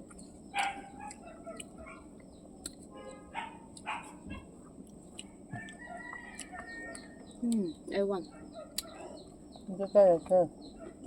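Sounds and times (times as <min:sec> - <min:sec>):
dog barking: 0:00.6 - 0:02.1, 0:03.3 - 0:04.5, 0:08.3 - 0:09.1.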